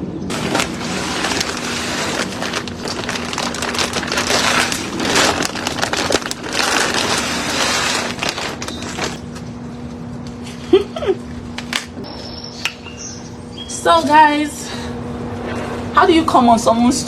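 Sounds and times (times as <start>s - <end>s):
rustling and crackling: 0.3s - 10.4s.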